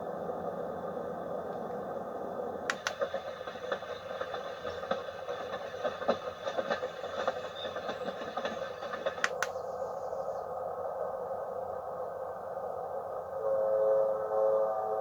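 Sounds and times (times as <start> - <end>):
white noise machine hiss: 0.0 - 15.0
irregular crackles: 2.7 - 9.6.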